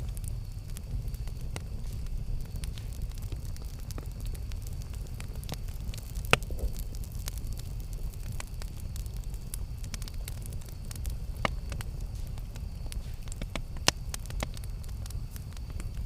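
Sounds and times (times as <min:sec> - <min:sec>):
campfire flames rumbling: 0:00.0 - 0:16.0
fire crackling and popping: 0:00.0 - 0:16.0.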